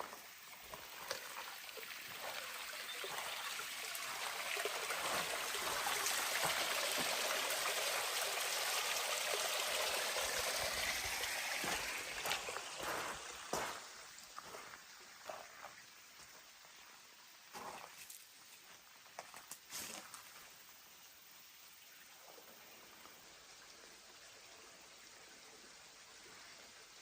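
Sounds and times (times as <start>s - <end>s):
stream water rushing: 0.0s - 17.1s.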